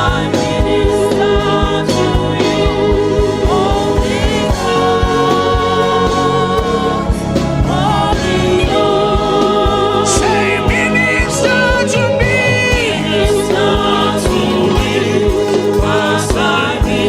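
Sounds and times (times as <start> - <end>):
gospel singing: 0.0 - 17.0
steady drum beat: 0.0 - 17.0.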